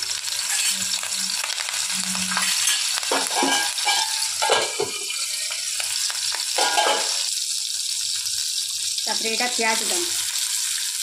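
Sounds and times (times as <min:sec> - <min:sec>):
chillies sizzling in hot oil: 0:00.0 - 0:11.0
steel lid knocks and clinks: 0:02.7 - 0:05.1, 0:06.6 - 0:07.2.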